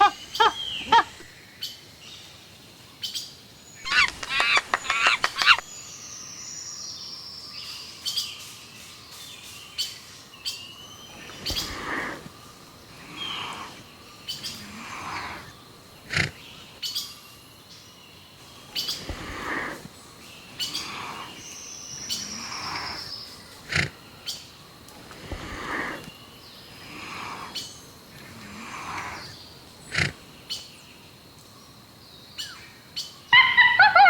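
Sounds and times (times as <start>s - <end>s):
birds calling and chirping: 0.0s - 34.0s
sharp clicks: 3.9s - 5.7s.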